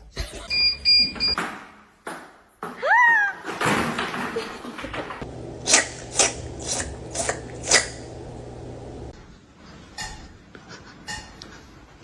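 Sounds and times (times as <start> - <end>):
low steady hum: 5.3 - 9.2.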